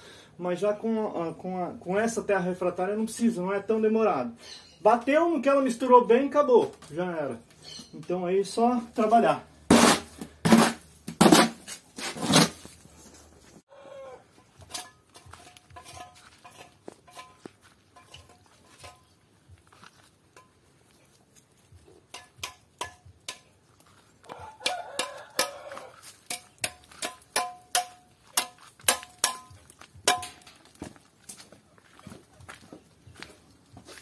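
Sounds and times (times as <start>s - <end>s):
trowel scraping mortar: 9.7s - 12.8s, 14.6s - 20.5s
trowel tapping bricks: 22.0s - 23.6s, 24.3s - 30.7s.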